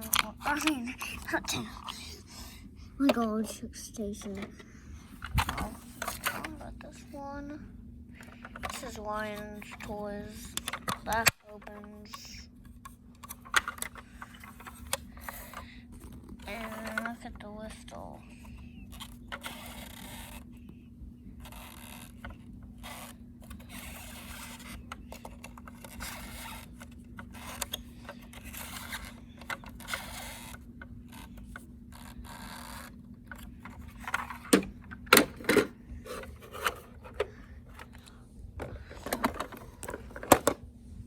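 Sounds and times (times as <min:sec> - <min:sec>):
sharp plastic clacks: 0:00.0 - 0:02.2, 0:03.0 - 0:04.6, 0:08.2 - 0:17.3, 0:21.4 - 0:40.6
plastic toy scrapes and clicks: 0:00.0 - 0:07.4, 0:08.2 - 0:20.6, 0:21.4 - 0:40.6.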